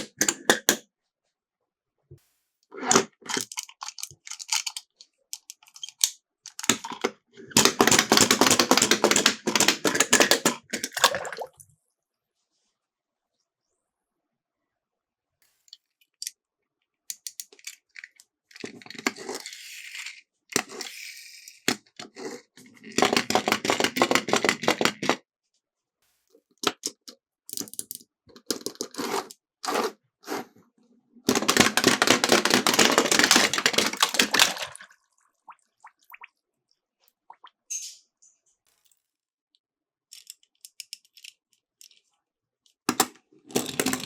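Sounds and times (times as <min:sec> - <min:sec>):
toy cars rattling down plastic slope: 0:02.8 - 0:11.0, 0:17.1 - 0:25.2, 0:31.3 - 0:34.8, 0:42.9 - 0:44.0.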